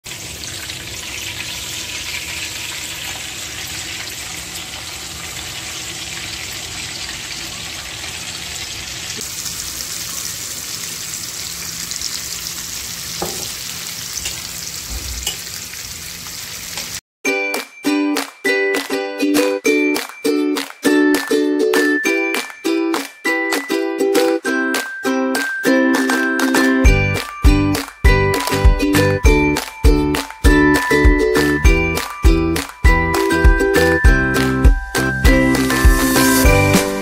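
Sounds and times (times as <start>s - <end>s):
meat sizzling in oil: 0.1s - 17.0s
plucked-string music: 17.3s - 37.0s.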